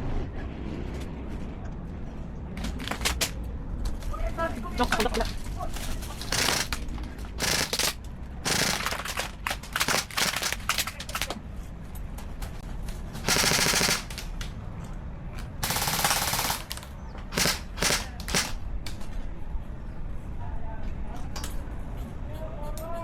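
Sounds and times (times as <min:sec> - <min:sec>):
airsoft gun shots: 0:06.3 - 0:06.8, 0:07.4 - 0:11.3, 0:13.2 - 0:14.4, 0:15.6 - 0:18.6.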